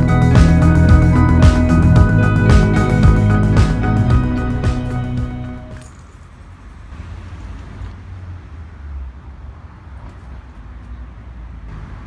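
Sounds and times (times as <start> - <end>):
low outdoor rumble: 0.0 - 5.8
background music: 0.0 - 5.9.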